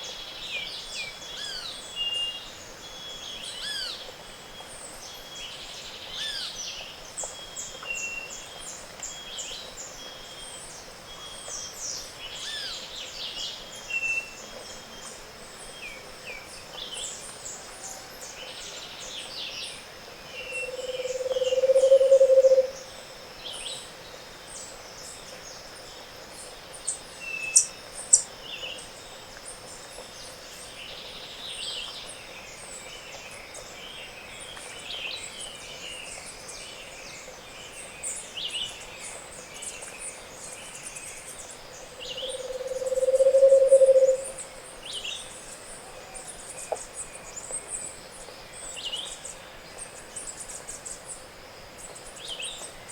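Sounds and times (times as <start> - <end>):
insect whine: 12.3 - 32.9, 38.1 - 47.8
bird singing low hollow trill: 20.2 - 23.7, 39.6 - 45.4
high-pitched bird calls: 42.2 - 44.4.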